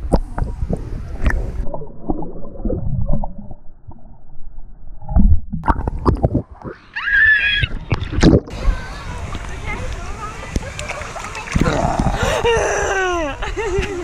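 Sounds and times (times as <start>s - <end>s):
water sloshing and splashing: 7.6s - 12.3s.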